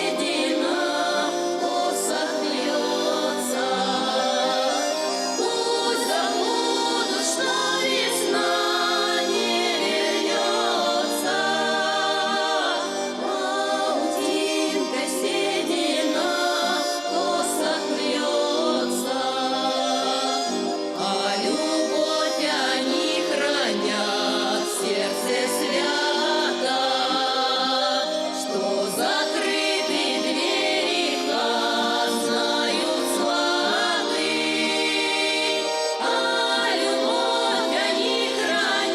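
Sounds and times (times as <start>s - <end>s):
folk vocal ensemble singing: 0.0s - 38.9s
instrumental accompaniment: 0.0s - 38.9s.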